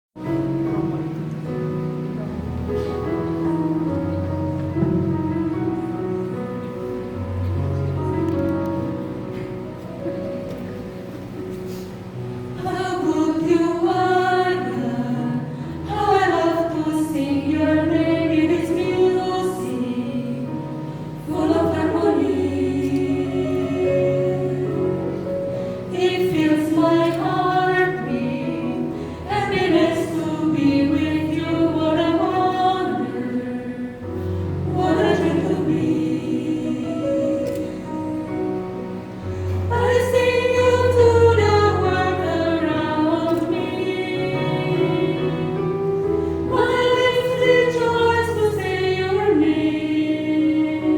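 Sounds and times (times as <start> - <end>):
women singing together: 12.6 - 38.6, 39.5 - 45.8, 46.4 - 50.9
singers breathing: 39.1 - 39.7.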